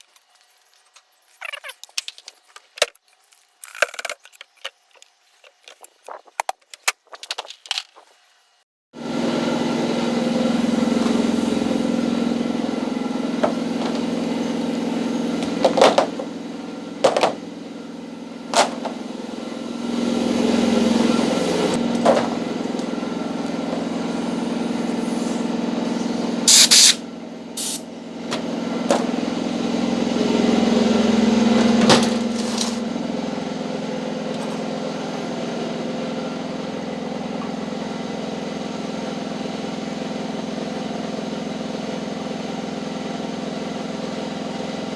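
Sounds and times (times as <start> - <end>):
electric motor humming: 9.1 - 33.3.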